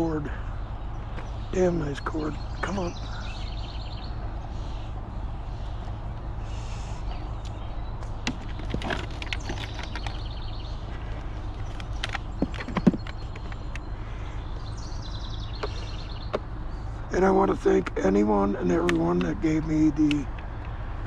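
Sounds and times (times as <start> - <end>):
clicks and knocks of handled scrap: 8.2 - 10.2, 10.9 - 13.9.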